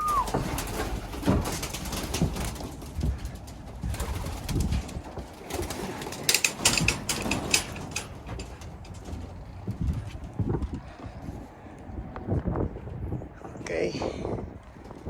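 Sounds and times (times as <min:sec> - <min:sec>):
pigeons cooing: 0:00.0 - 0:02.0
sharp clatters: 0:00.0 - 0:10.0.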